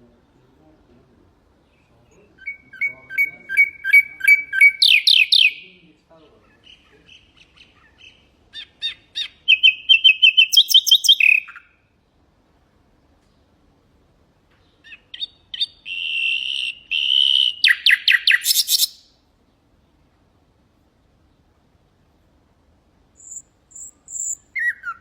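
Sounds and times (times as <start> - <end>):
nightingale singing: 1.6 - 12.0, 14.6 - 19.6, 23.2 - 25.0.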